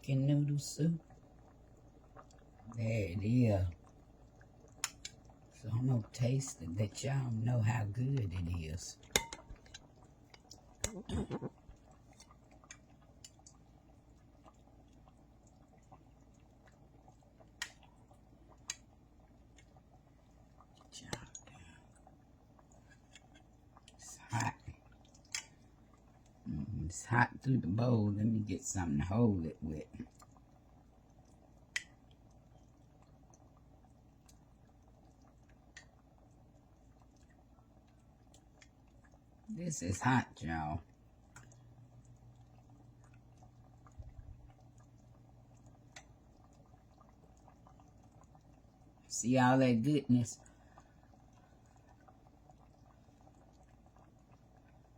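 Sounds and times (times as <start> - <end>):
faint chewing: 9.0 - 26.4.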